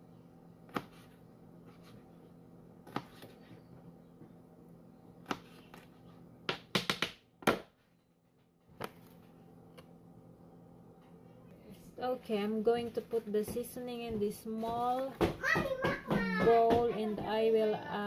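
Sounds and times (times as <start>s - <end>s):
knife chopping on cutting board: 0.7s - 1.1s, 2.9s - 3.3s.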